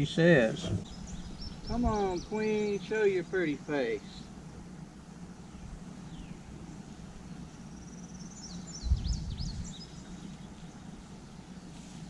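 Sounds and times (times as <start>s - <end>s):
honey bees humming: 0.0s - 12.0s
bird chirping: 0.4s - 2.9s, 7.4s - 11.7s
short low thump: 0.5s - 0.9s.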